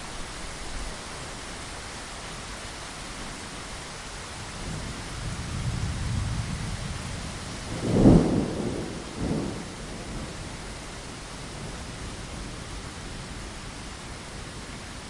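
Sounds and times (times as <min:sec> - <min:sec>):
rain against a window: 0:00.0 - 0:15.0
thunder: 0:04.6 - 0:10.6.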